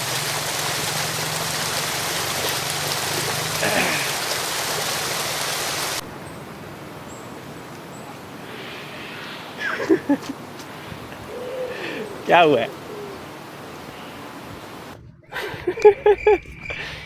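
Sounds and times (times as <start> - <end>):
rain pattering on leaves: 0.0 - 8.5.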